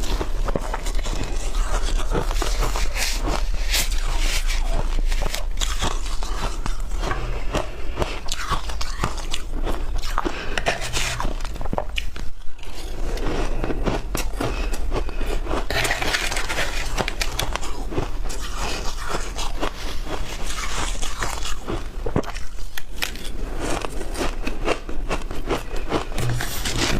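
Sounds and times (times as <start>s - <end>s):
chewing shaved ice: 0.0s - 26.9s.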